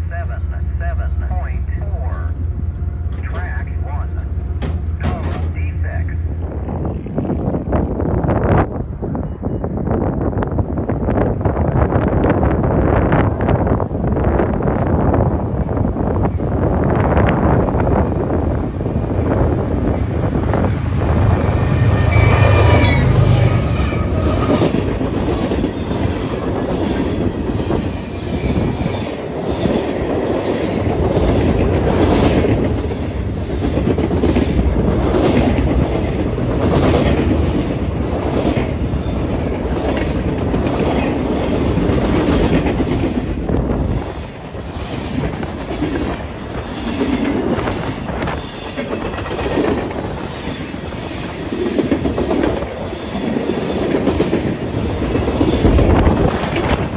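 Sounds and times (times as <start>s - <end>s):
diesel locomotive engines rumbling: 0.0s - 56.9s
train wheels clicking over rail joints: 4.5s - 5.6s, 24.2s - 56.9s.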